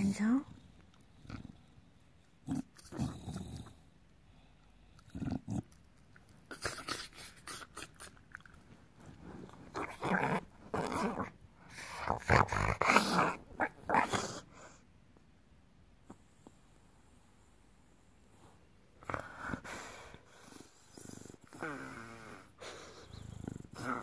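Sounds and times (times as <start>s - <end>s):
dog making throaty noises: 4.8s - 8.7s.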